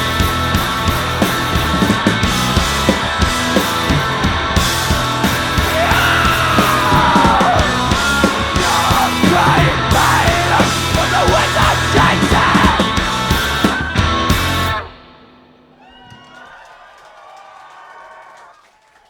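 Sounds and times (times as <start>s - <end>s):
live rock band playing: 0.0s - 15.5s
person yelling: 5.7s - 13.0s.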